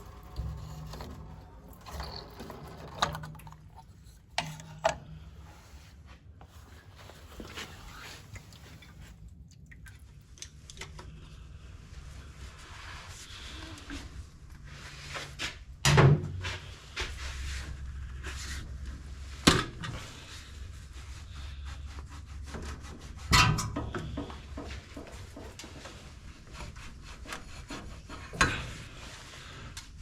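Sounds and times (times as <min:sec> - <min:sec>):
low rumble: 0:00.0 - 0:04.2
rubbing and scraping: 0:00.0 - 0:09.0, 0:20.0 - 0:29.7.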